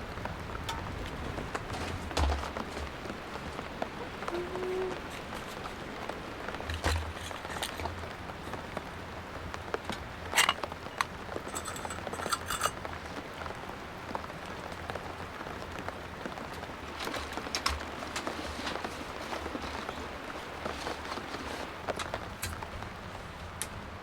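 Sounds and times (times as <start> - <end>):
rain pattering on tent: 0.0 - 24.0
clinks of cooking utensils: 6.7 - 8.6, 9.8 - 12.8.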